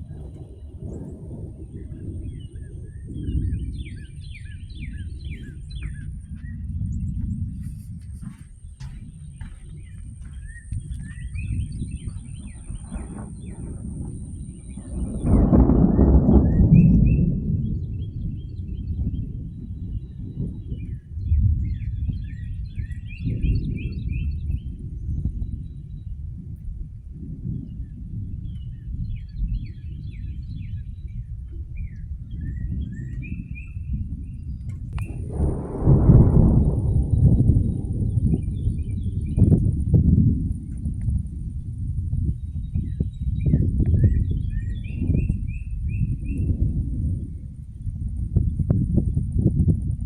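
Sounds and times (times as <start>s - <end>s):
birds chirping: 0.0s - 15.6s, 42.2s - 46.7s
songbirds chirping: 0.0s - 26.2s, 27.6s - 35.4s, 40.5s - 49.2s
low steady rumble: 0.0s - 50.0s
thunder rumbling: 0.0s - 50.0s.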